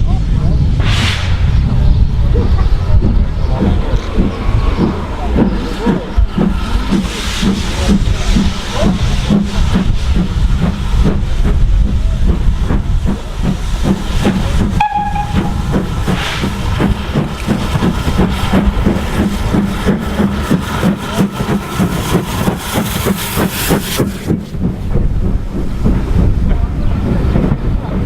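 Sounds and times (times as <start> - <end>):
steam locomotive exhaust beats: 0.0 - 28.0
short steam whistle blast: 14.8 - 15.7.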